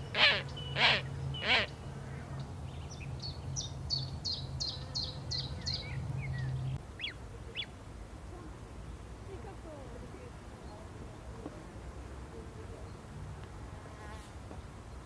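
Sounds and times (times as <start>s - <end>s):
harsh bird call: 0.0s - 1.8s.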